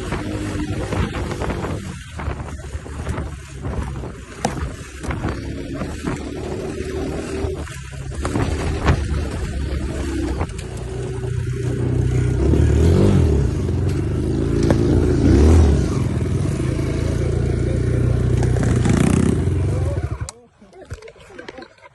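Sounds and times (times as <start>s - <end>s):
dirt bike engine revving: 0.0s - 20.3s.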